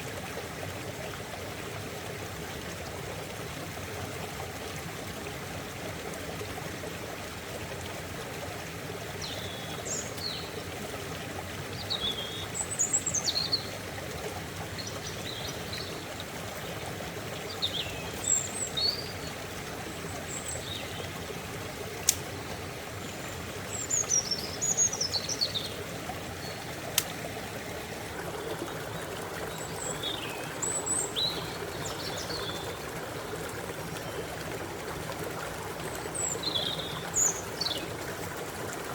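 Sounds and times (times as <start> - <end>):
stream running: 0.0 - 38.9
small birds chirping: 17.4 - 21.2, 23.0 - 27.2, 28.2 - 38.8.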